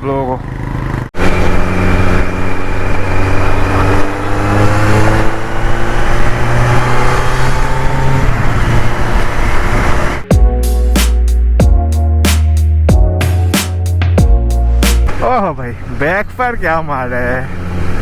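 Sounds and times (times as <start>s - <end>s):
motorcycle engine accelerating: 0.0s - 14.4s.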